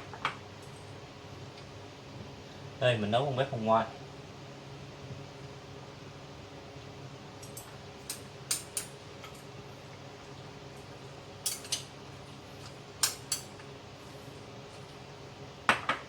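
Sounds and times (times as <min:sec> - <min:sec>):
steady low hum: 0:00.0 - 0:16.0
kitchenware clinking: 0:11.4 - 0:11.9.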